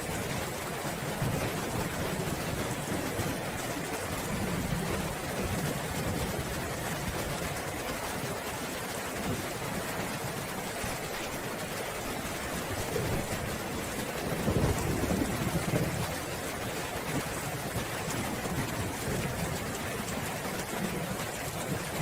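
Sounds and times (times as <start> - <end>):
steady rainfall: 0.0 - 22.0
low rolling thunder: 12.8 - 16.4, 17.0 - 22.0.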